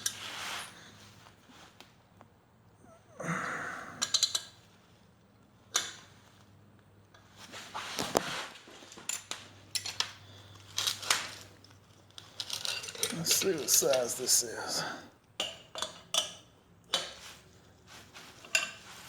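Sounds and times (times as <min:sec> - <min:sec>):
scraping or rustling: 0:00.0 - 0:01.7, 0:07.3 - 0:09.1
faint steady hum: 0:00.0 - 0:19.0
metal tools clinking: 0:08.9 - 0:14.8.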